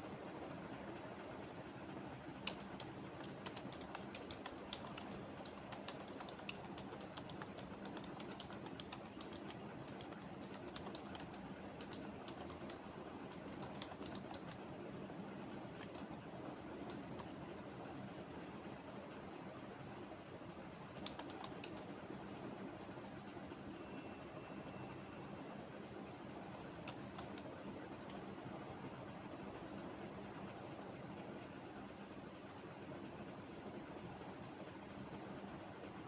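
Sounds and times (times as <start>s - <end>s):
low background noise: 0.0s - 36.0s
keyboard typing: 2.4s - 14.7s, 15.7s - 17.4s, 21.0s - 21.9s, 26.5s - 28.2s.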